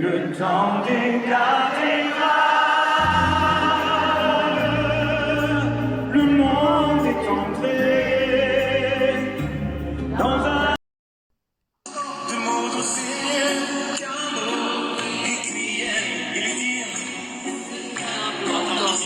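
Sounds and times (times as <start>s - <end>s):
man singing with vibrato: 0.0s - 10.8s, 11.9s - 19.0s
backing music with deep bass: 3.0s - 10.8s.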